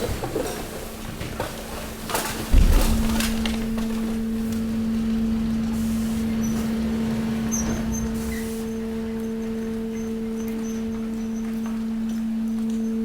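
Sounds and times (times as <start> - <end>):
hydraulic power pack humming: 2.4 - 13.0
low thump: 2.5 - 9.1.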